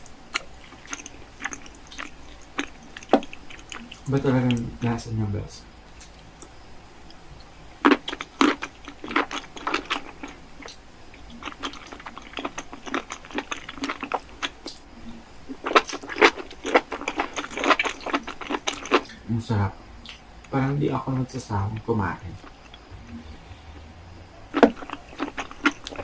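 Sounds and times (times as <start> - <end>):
person chewing a burger: 0.0 - 4.1, 7.8 - 14.8, 15.4 - 19.2, 24.4 - 26.0.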